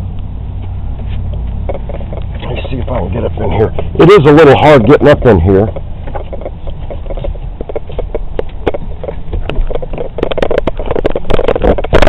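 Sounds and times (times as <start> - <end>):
camera knocking about: 0.6 - 12.0.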